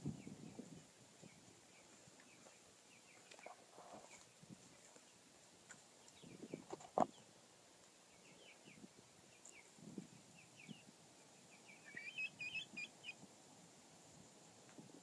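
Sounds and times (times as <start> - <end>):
faint bird chirps: 8.1 - 13.2.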